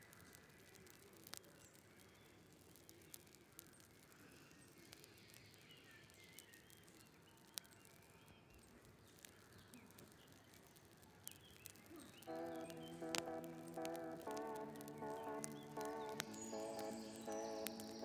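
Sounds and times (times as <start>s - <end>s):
music: 12.3s - 18.0s.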